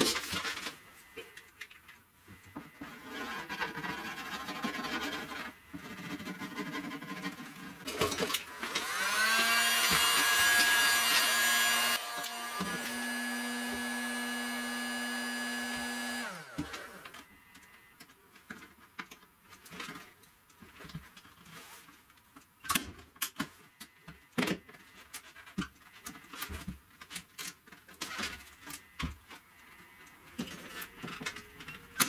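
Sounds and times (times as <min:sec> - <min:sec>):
electric tool motor running: 0:08.2 - 0:17.2.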